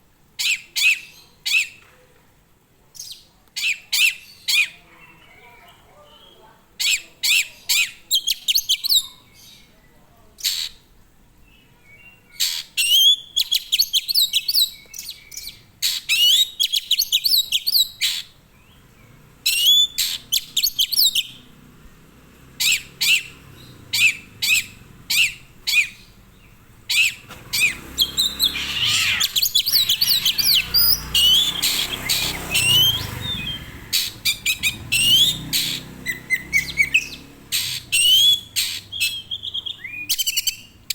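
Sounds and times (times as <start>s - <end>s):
songbird chirping: 0.3s - 40.9s
rough rushing noise: 21.7s - 38.7s.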